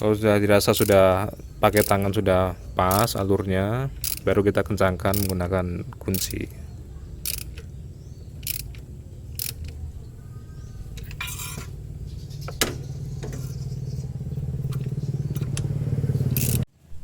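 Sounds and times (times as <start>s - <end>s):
steady low hum: 0.0s - 17.0s
wrench clinking on metal: 0.7s - 2.2s, 3.9s - 4.4s, 5.1s - 5.5s, 6.1s - 6.6s, 7.2s - 7.7s, 8.4s - 9.8s, 10.9s - 11.8s, 16.3s - 16.6s.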